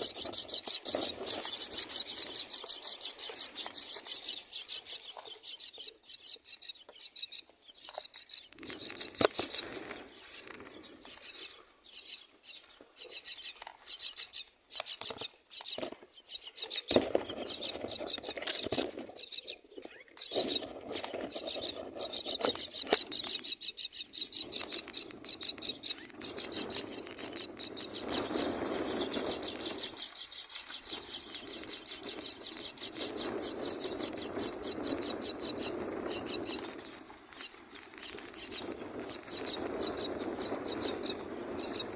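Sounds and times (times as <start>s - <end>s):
knocks and rustles in nest: 0.0s - 4.4s, 7.8s - 11.4s, 16.8s - 23.6s
nestlings begging calls: 0.0s - 41.9s.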